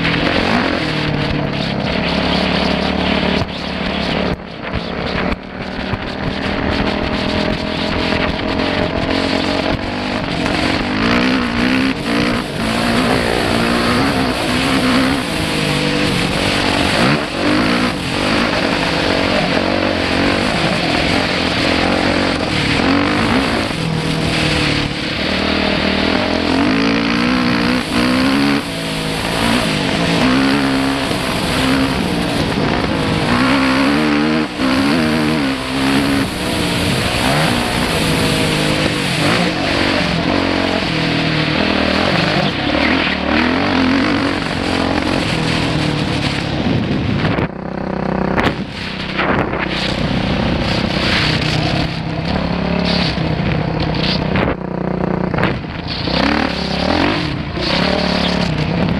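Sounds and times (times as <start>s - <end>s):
dirt bike engine revving: 0.0s - 58.9s
steady rush of noise: 0.0s - 58.9s.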